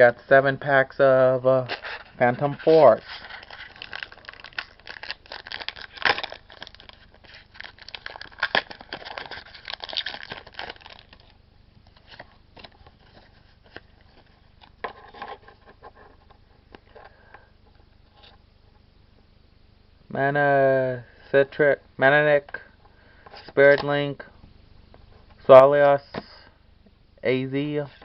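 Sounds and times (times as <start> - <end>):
cards rustling: 1.6 - 17.2
foil pack tearing and crinkling: 1.7 - 11.4.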